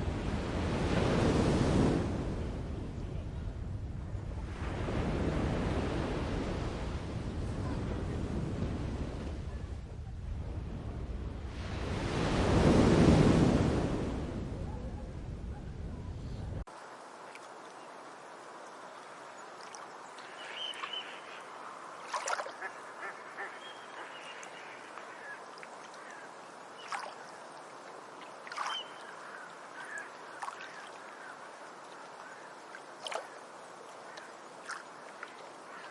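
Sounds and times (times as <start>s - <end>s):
steady background hiss: 16.6s - 35.9s.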